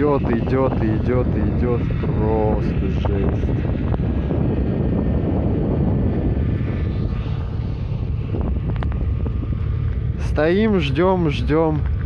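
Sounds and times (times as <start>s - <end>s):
wind blowing across microphone: 0.0s - 12.0s.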